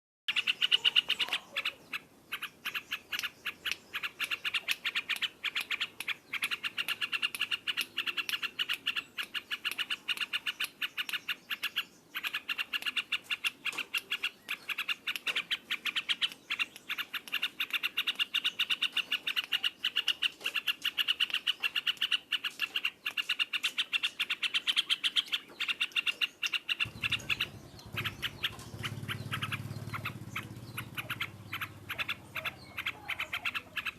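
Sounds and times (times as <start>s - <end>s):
bulbul singing rapid chatter: 26.6s - 33.9s
low hum: 26.9s - 32.8s.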